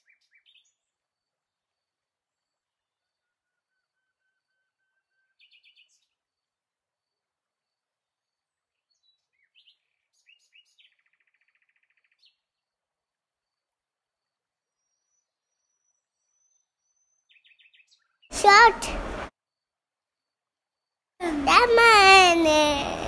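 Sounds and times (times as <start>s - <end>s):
faint bird chirps: 3.2s - 6.3s, 8.5s - 12.5s, 14.6s - 18.3s.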